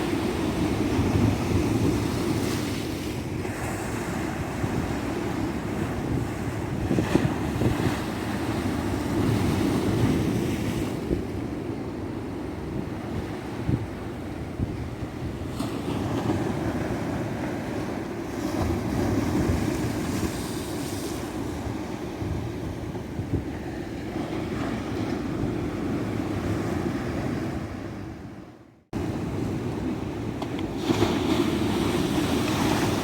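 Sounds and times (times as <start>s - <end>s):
ocean surf breaking on beach: 29.0s - 33.0s.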